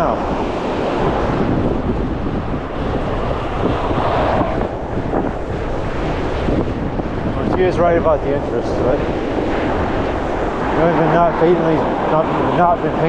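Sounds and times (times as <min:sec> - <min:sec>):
strong gusty wind on microphone: 0:00.0 - 0:13.0.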